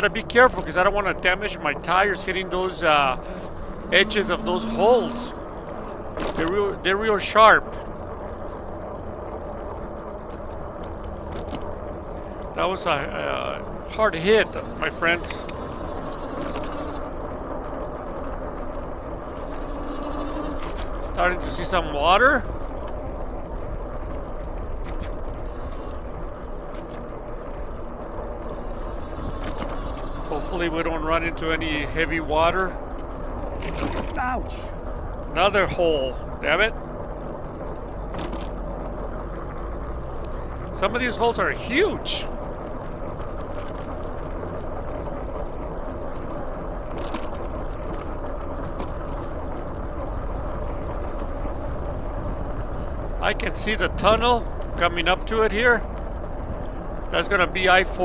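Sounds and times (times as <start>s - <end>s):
bike rolling over rough concrete: 0.0s - 58.0s
wind rumble on microphone: 0.0s - 58.0s
bike clicks and knocks: 36.8s - 40.7s, 42.3s - 53.2s.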